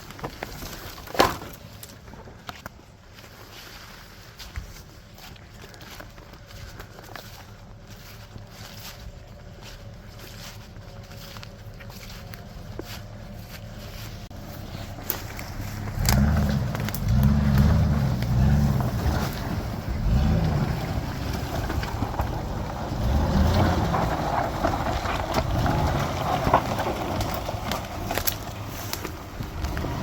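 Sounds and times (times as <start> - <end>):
truck engine revving: 14.6 - 30.0.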